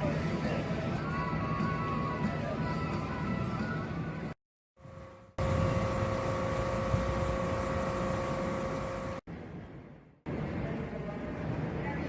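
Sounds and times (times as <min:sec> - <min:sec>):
engine-like drone: 0:04.8 - 0:09.2
steady whine: 0:04.8 - 0:10.6.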